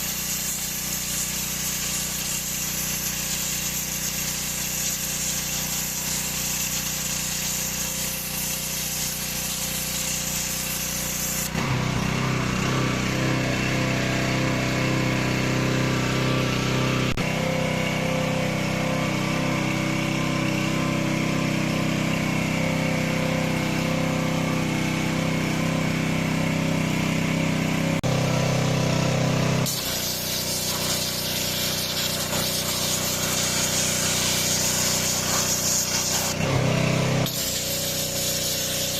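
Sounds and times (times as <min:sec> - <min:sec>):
water jet spray hiss: 0:00.0 - 0:11.6, 0:29.6 - 0:38.9
pressure washer engine running: 0:00.0 - 0:38.9.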